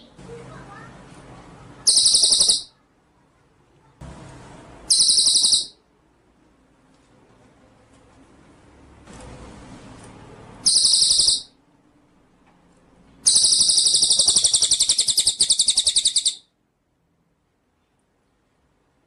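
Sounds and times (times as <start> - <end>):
songbird trilling: 1.8 - 2.8, 4.9 - 5.8, 10.6 - 11.5, 13.2 - 16.5.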